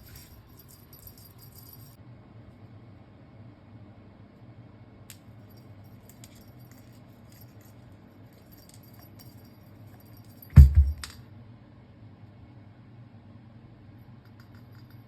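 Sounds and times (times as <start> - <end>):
cat toy jingling and clinking: 0.0 - 2.0, 5.6 - 11.2
loud thump: 10.6 - 11.2.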